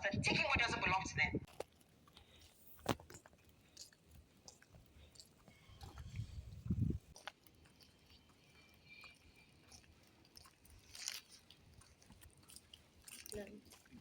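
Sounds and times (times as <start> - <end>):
chewing and crunching: 1.5 - 14.0.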